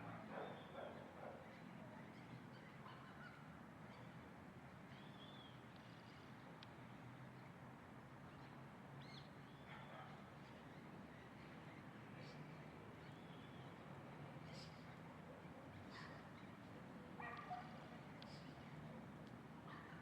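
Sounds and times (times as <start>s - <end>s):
songbird chirps: 8.4s - 20.0s.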